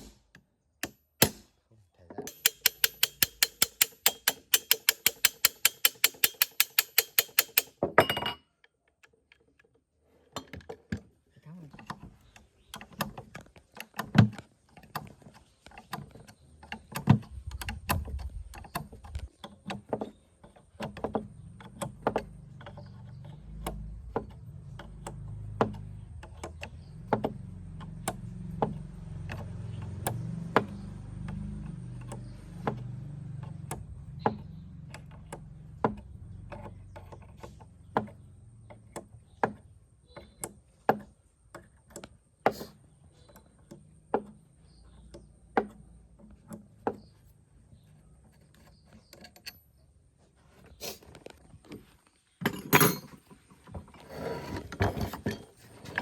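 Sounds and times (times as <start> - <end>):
metallic clicks and knocks of tools: 2.2 - 11.0
low rumble: 17.2 - 19.3.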